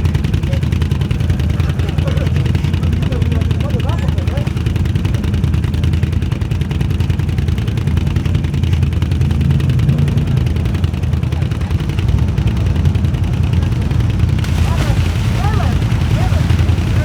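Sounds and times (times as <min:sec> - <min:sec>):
atv engine running hard: 0:00.0 - 0:17.0.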